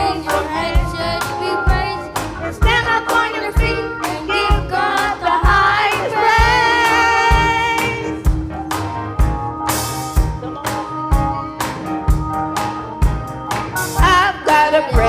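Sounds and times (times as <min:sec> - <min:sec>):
gospel choir singing: 0:00.0 - 0:08.3
live band accompaniment: 0:00.0 - 0:15.0
steady drum beat: 0:00.0 - 0:15.0.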